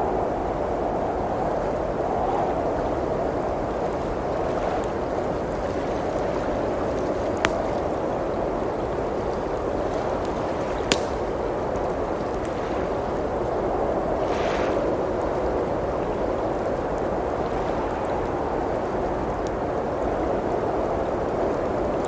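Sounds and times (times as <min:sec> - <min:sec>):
blizzard wind rushing: 0:00.0 - 0:22.0
wood fire popping: 0:06.8 - 0:08.1, 0:09.4 - 0:12.6.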